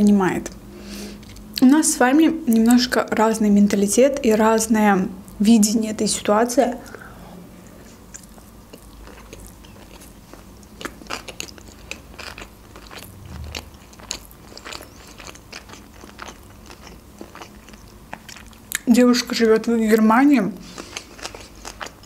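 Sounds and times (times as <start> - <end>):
chewing with wet mouth clicks: 8.1 - 18.9, 20.8 - 22.0.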